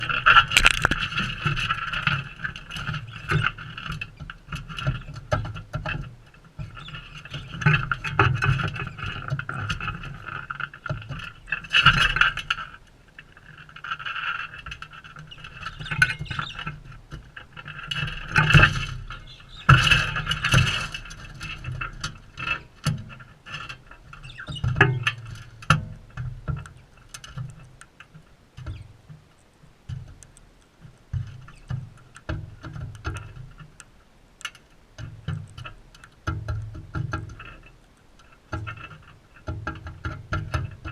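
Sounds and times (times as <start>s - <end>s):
scratchy clicks: 0.5s - 1.1s
birds screeching calls: 15.6s - 16.8s, 19.1s - 20.3s.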